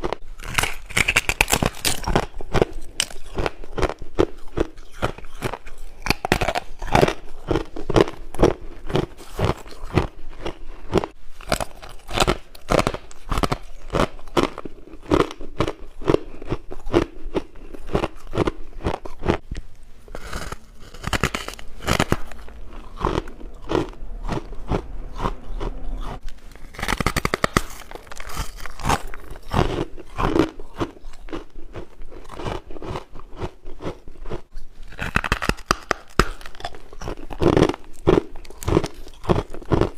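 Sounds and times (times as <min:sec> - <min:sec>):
person chewing ice: 0:00.0 - 0:39.9.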